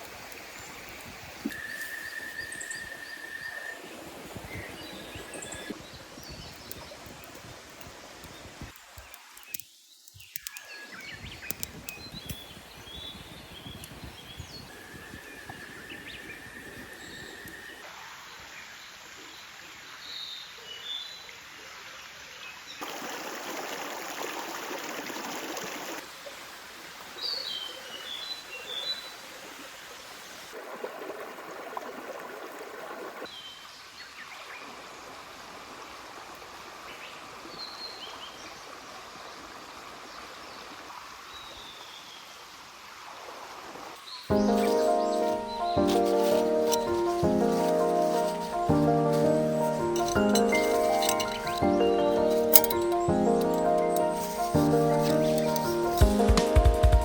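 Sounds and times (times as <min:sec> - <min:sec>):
stream running water: 0:00.0 - 0:57.0
small birds chirping: 0:00.5 - 0:17.8, 0:44.0 - 0:57.0.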